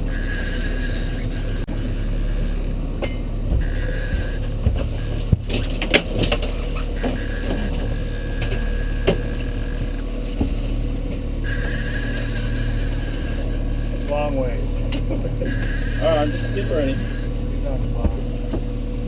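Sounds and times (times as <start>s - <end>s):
boat engine running steadily: 0.0s - 19.0s
sharp clicks and knocks: 3.0s - 11.3s.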